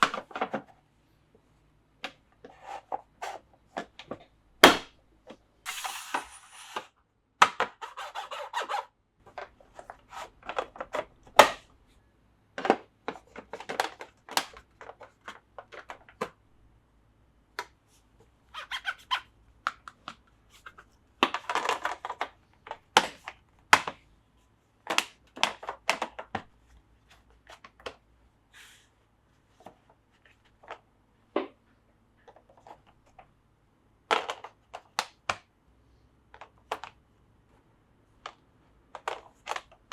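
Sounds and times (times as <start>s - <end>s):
rustling and sliding noise: 5.7s - 6.9s.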